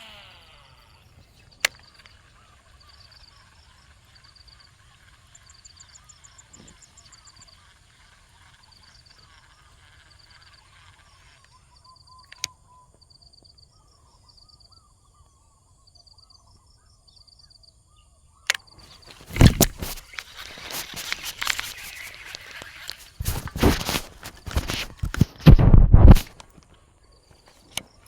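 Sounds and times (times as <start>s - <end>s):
rustling and crunching in dry vegetation: 18.7s - 28.0s.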